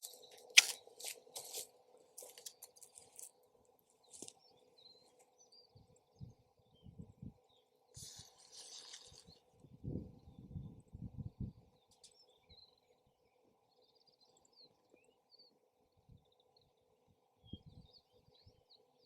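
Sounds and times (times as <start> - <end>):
wind on microphone: 6.2 - 7.4, 9.6 - 11.7.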